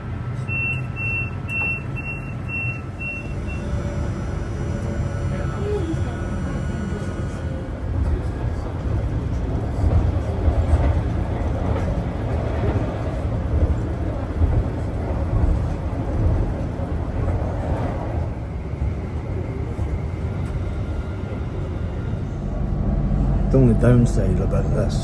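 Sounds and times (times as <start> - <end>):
tram wheels rumbling on rails: 0.0 - 25.0.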